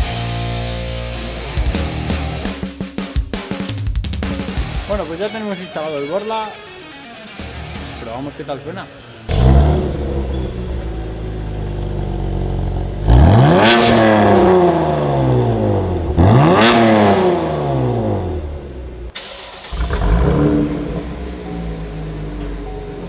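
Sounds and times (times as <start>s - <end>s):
car engine revving: 7.8s - 23.0s.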